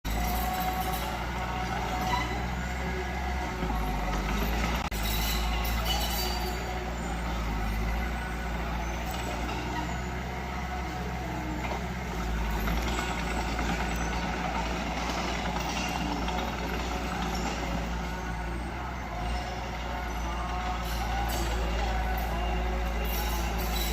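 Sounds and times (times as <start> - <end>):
diesel engine drone: 0.0 - 23.9.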